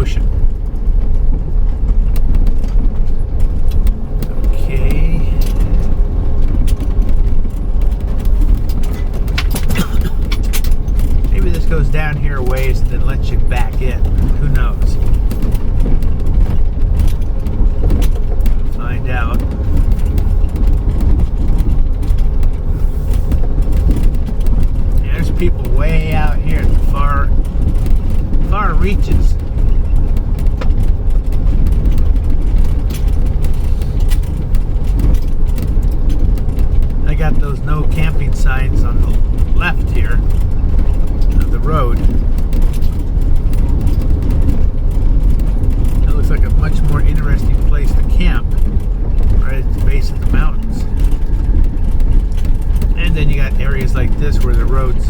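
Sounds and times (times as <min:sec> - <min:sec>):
rattles and clicks: 0:00.0 - 0:55.0
vehicle cabin rumble: 0:00.0 - 0:55.0.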